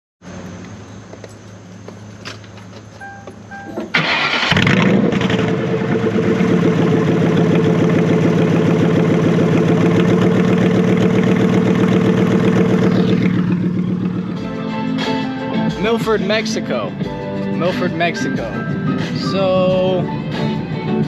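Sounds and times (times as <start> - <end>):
car engine cranking: 2.0 - 14.6
car engine fast idle: 3.9 - 14.5.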